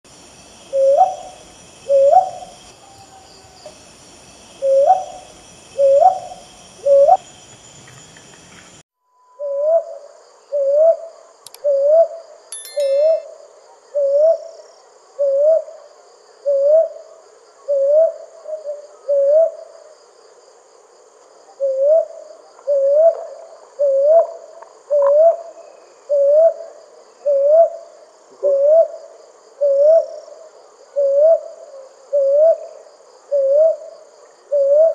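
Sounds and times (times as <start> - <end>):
insect stridulation: 0.0 - 34.9
owl hooting: 0.7 - 3.2, 4.6 - 7.3, 9.4 - 12.2, 15.2 - 15.8, 16.4 - 17.0, 17.7 - 19.6, 21.6 - 25.5, 26.1 - 27.8, 28.4 - 29.0, 29.6 - 30.2, 31.0 - 32.7, 33.3 - 33.9, 34.5 - 34.9.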